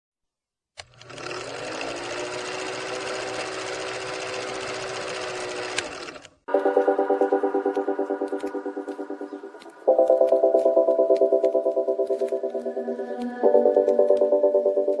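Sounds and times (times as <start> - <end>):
drill press whining: 0.8 - 6.4.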